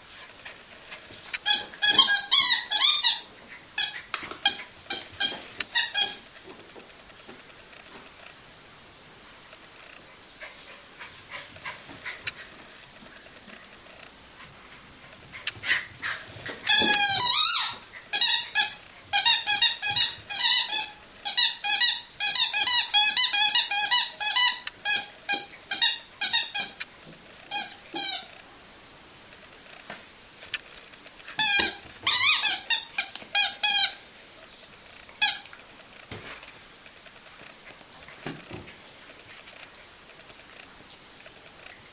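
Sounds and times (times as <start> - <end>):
squeaky toy squeaking: 1.4 - 6.2, 16.7 - 26.8, 27.5 - 28.3, 31.4 - 34.0, 35.2 - 35.5.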